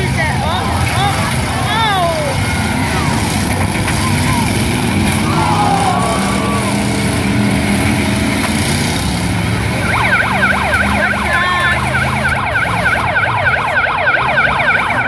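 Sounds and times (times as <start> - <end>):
car engines running: 0.0 - 15.0
siren yelping: 5.2 - 7.3, 9.7 - 15.0.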